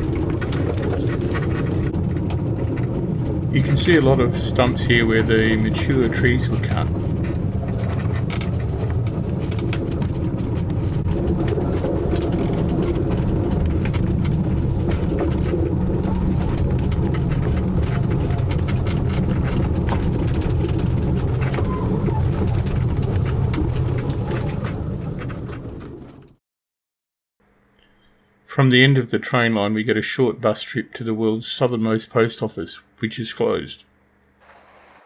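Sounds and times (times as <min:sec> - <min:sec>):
clicks and rattles of train: 0:00.0 - 0:26.4
train rumbling: 0:00.0 - 0:26.4.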